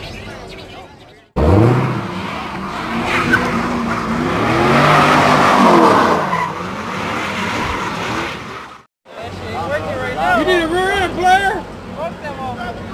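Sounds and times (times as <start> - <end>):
car engine revving: 1.4 - 8.9.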